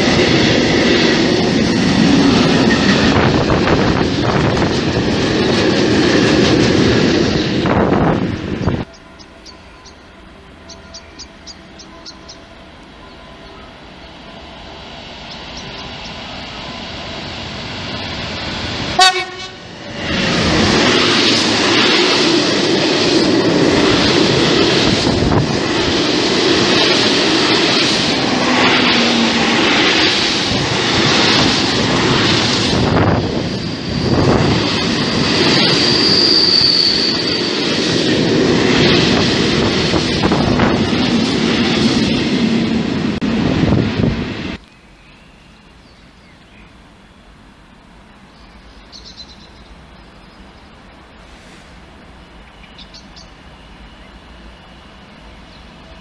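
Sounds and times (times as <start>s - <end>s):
freight train rumble and clatter: 0.0s - 44.6s
train horn blast: 8.7s - 14.4s, 19.0s - 19.8s
high squeal: 32.2s - 39.4s.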